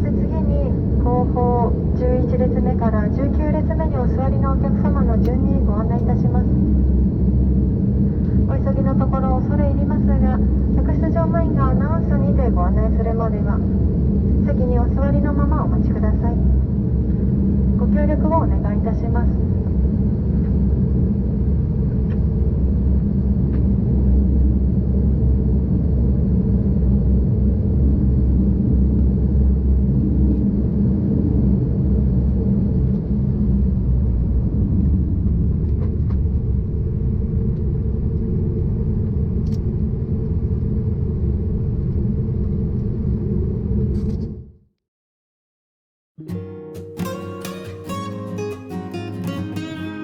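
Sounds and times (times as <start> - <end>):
turboprop engines rumbling: 0.0 - 44.5.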